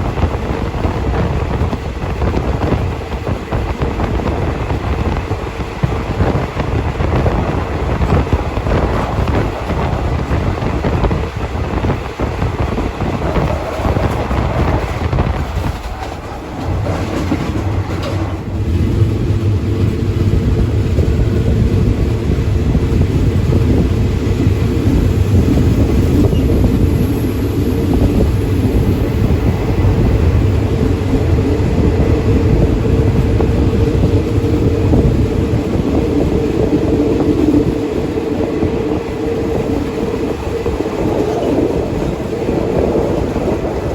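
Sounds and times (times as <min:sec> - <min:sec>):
train carriage rumbling on rails: 0:00.0 - 0:43.9.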